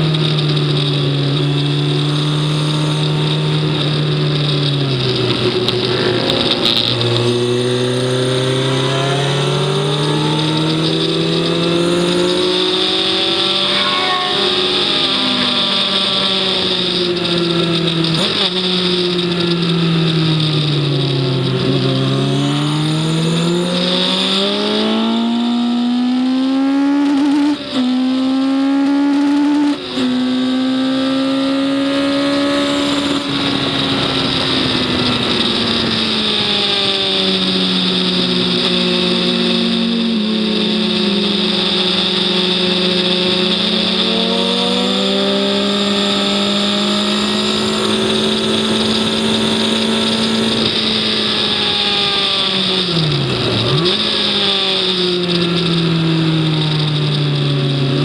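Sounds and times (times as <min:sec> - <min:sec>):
gear changes: 0:00.0 - 0:58.0
racing engine revving: 0:00.0 - 0:58.0
wind rush: 0:04.7 - 0:18.6, 0:31.6 - 0:58.0.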